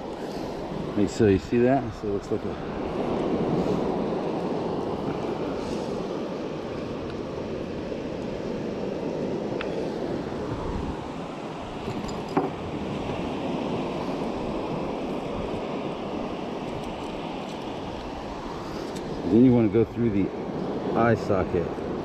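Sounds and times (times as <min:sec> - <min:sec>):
surf rushing on beach: 0:00.0 - 0:22.0
wind on microphone: 0:00.0 - 0:22.0.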